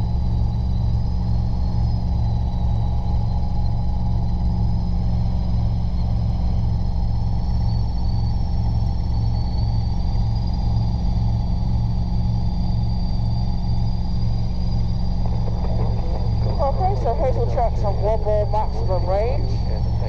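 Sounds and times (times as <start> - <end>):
helicopter engine and rotor drone: 0.0 - 20.0
thin high whine: 11.2 - 20.0.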